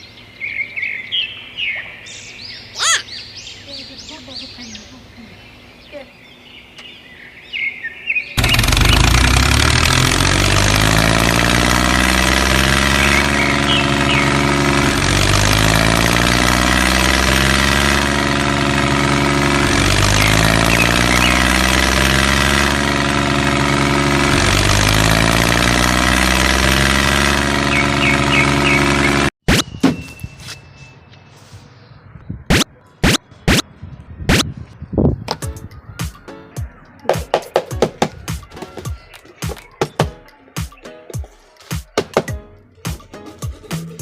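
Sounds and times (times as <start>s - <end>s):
engine-like running sound: 8.4s - 29.4s.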